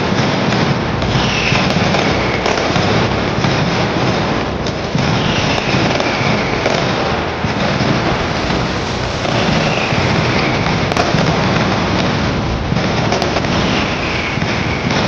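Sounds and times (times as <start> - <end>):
firecrackers crackling: 0.0 - 15.0
high falling whistle: 1.1 - 3.5, 5.0 - 12.3, 13.4 - 15.0.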